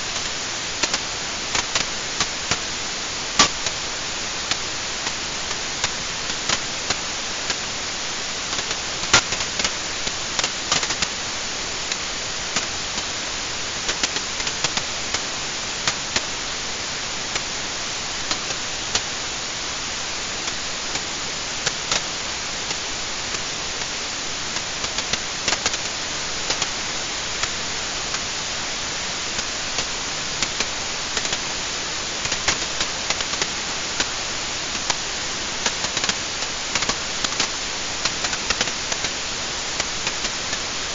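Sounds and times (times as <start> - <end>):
wood fire crackling and popping: 35.6 - 40.7.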